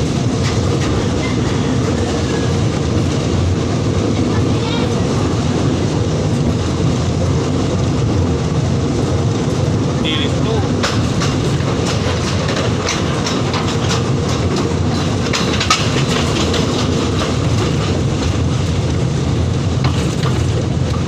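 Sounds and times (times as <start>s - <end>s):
train rumble: 0.0s - 21.0s
wheel clicks and rattles: 10.7s - 21.0s.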